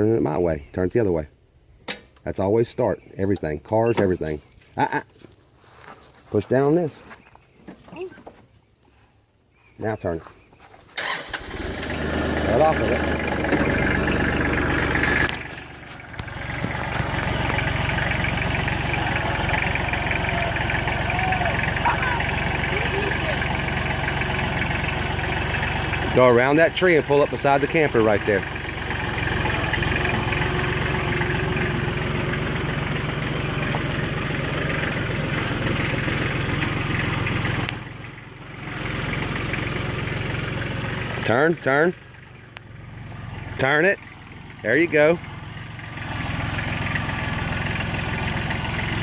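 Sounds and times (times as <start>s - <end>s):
tractor engine running: 11.0s - 49.0s.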